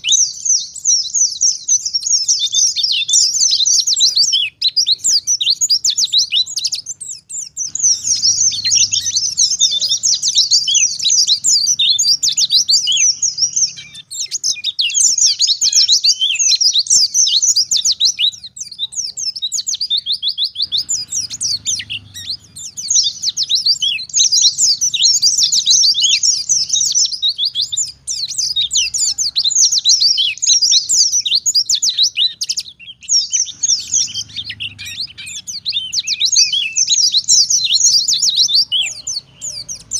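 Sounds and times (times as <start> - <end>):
bird twittering rapidly: 0.0 - 39.9.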